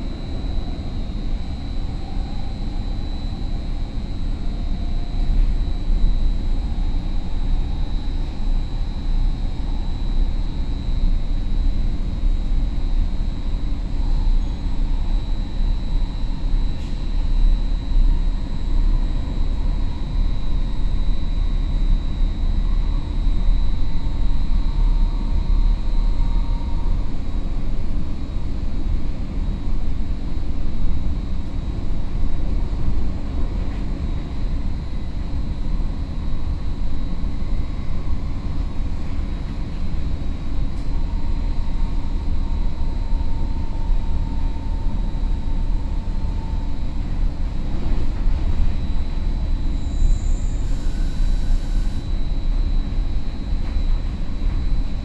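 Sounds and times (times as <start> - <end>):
train rumbling on rails: 0.0 - 10.0, 22.6 - 55.0
high-pitched whine: 0.0 - 55.0.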